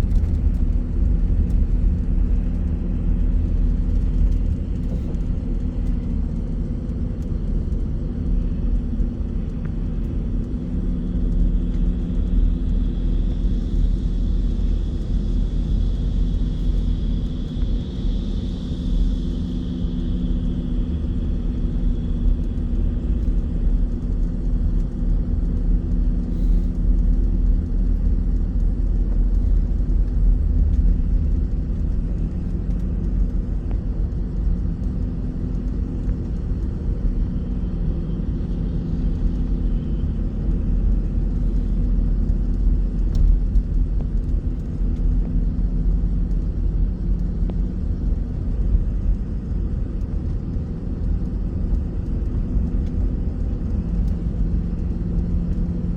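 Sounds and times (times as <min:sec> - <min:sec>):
bus engine drone: 0:00.0 - 0:55.9
deep road rumble: 0:00.0 - 0:55.9.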